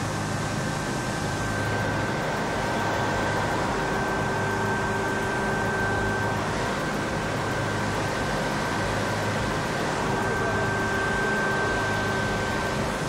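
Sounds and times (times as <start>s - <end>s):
constant low hum: 0.0s - 13.0s
thin high whine: 0.0s - 13.0s.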